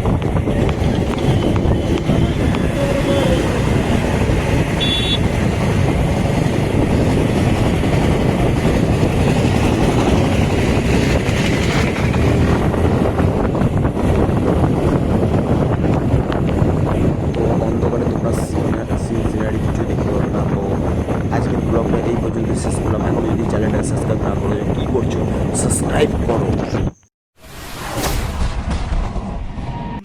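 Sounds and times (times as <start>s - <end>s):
wind rush over microphone: 0.0s - 27.0s
motorcycle engine and road noise: 0.0s - 27.1s
high beep: 4.8s - 5.2s.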